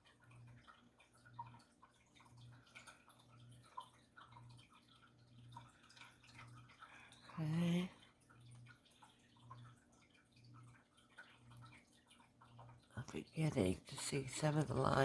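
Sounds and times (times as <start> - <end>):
faint water drips: 0.0 - 15.0.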